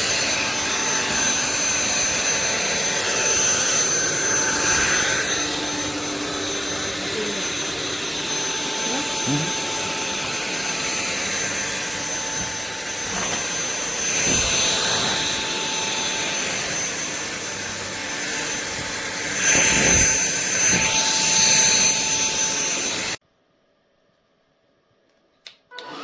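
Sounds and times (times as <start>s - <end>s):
stick vacuum running: 0.0s - 23.2s, 25.7s - 26.0s.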